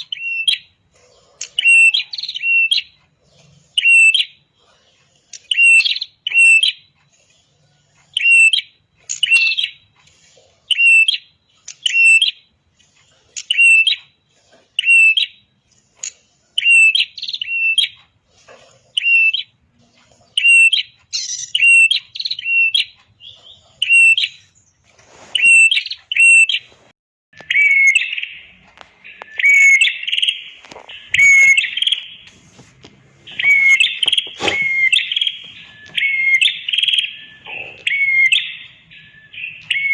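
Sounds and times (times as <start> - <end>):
bird chirping call notes: 8.1 - 9.9, 20.4 - 24.7, 27.4 - 32.6, 33.2 - 39.9.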